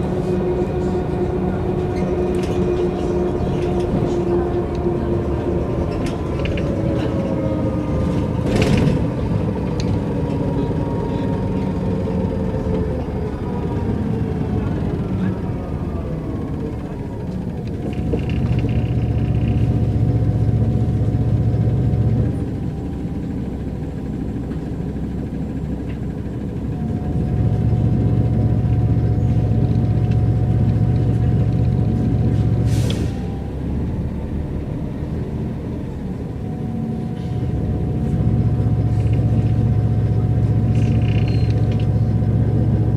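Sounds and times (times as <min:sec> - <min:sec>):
bus engine drone: 0:00.0 - 0:42.9
interior rattles and clicks: 0:01.0 - 0:14.9, 0:16.4 - 0:21.4, 0:38.6 - 0:42.7
brief air hiss: 0:32.7 - 0:33.2.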